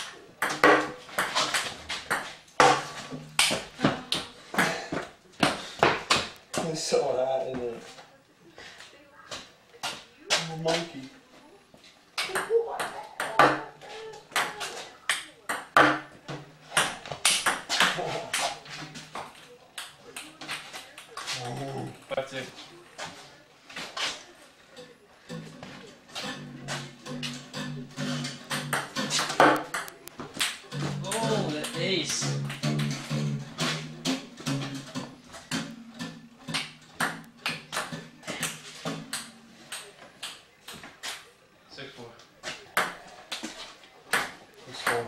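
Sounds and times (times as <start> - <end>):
ping-pong ball clicking: 28.5 - 30.5.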